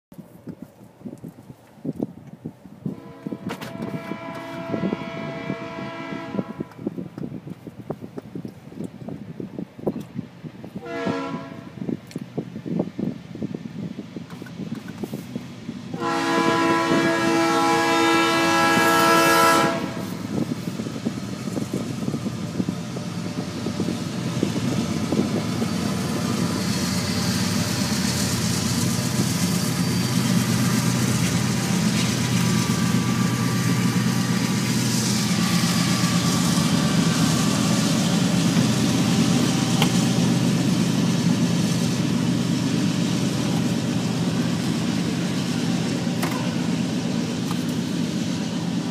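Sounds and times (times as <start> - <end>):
diesel locomotives passing: 2.5 - 48.9
locomotive air horn: 2.9 - 6.9, 10.8 - 11.8, 15.9 - 20.2.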